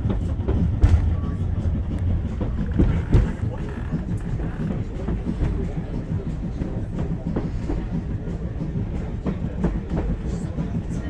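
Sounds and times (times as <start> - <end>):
wheels knocking and clattering: 0.0 - 8.0
railway carriage rumble: 0.0 - 11.0.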